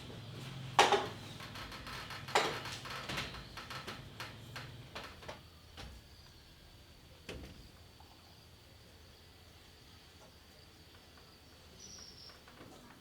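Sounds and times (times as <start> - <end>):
knocks: 0.8 - 1.2, 2.2 - 3.6.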